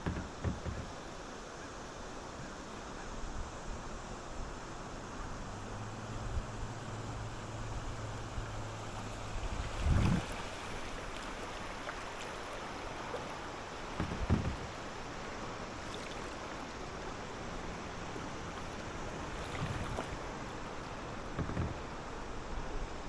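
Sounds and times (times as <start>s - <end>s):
dull low paddle thumps: 0.0s - 1.1s, 5.7s - 12.1s, 13.2s - 23.0s
rush of water: 0.0s - 23.0s.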